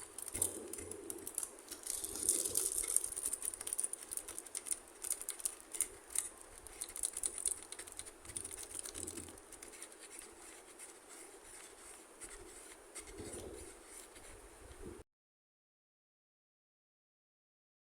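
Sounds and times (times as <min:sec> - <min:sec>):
plastic toy pieces clicking: 0:00.0 - 0:09.8.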